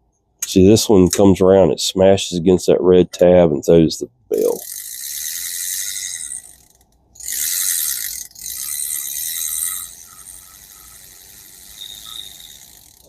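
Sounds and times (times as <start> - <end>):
fishing reel gear whirring: 4.4 - 13.0
reel ticking: 4.4 - 13.0.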